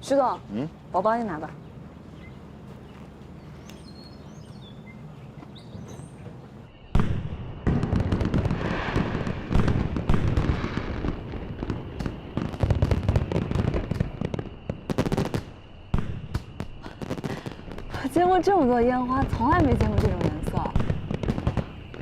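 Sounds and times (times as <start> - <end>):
fireworks booming: 5.8 - 22.0
fireworks crackling bursts: 6.9 - 22.0.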